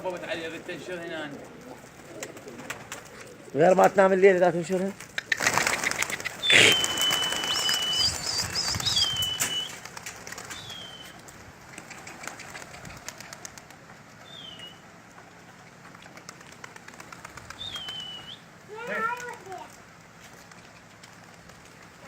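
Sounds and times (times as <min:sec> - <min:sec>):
pigeon wings flapping and rustling: 0:00.0 - 0:22.0
high whistled bird notes: 0:05.8 - 0:09.8, 0:10.6 - 0:11.2, 0:14.3 - 0:14.8, 0:17.6 - 0:18.5.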